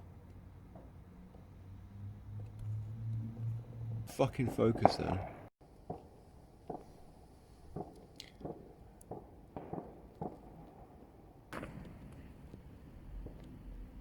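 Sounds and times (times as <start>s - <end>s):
distant fireworks bangs: 4.1s - 14.0s
sharp firework crack: 4.4s - 14.0s.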